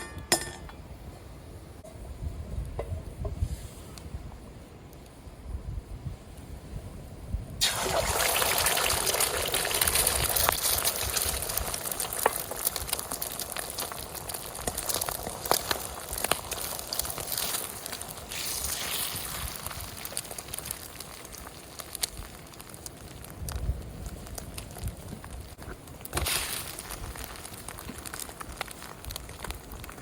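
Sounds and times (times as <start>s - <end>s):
food sizzling in a hot pan: 7.6s - 21.6s.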